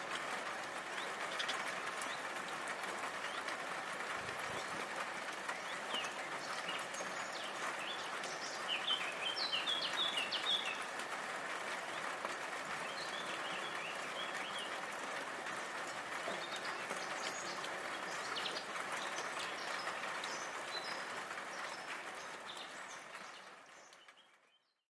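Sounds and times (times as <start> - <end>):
rain hiss: 0.0 - 24.1
small birds chirping: 4.3 - 10.9, 12.8 - 14.8, 15.6 - 24.8.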